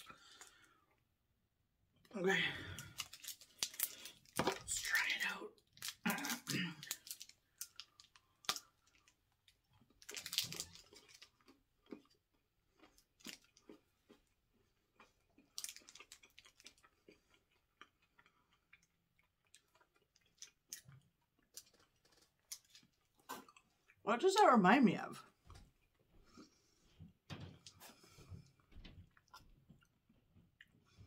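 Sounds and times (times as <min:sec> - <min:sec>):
person chewing crispy chocolate bar: 0:00.0 - 0:01.0, 0:02.0 - 0:24.0.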